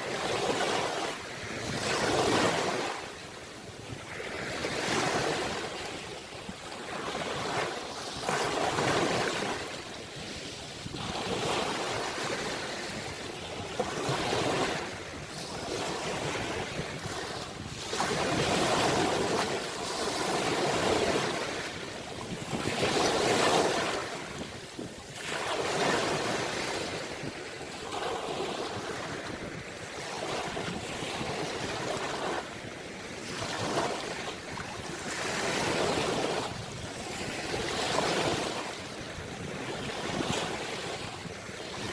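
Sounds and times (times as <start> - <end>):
ocean waves breaking on shore: 0.0 - 41.9.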